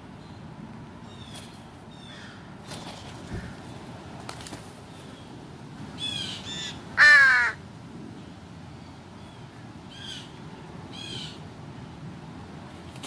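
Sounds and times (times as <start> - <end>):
crows cawing: 6.6 - 7.6.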